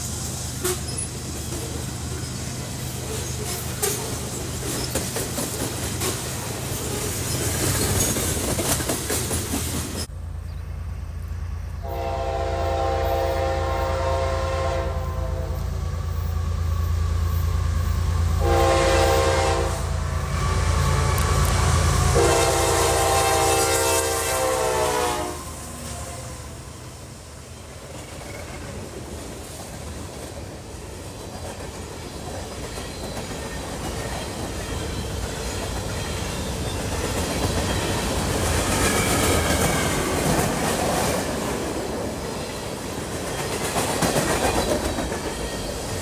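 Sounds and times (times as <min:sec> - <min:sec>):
locomotive engine rumble: 0:00.0 - 0:46.0
rushing train noise: 0:00.0 - 0:46.0
locomotive air horn: 0:00.6 - 0:01.1, 0:11.8 - 0:15.9, 0:18.3 - 0:26.9.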